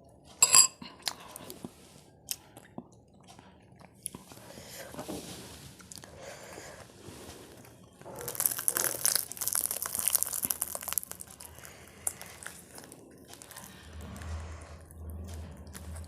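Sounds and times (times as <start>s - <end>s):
crunching while eating: 7.5s - 16.0s.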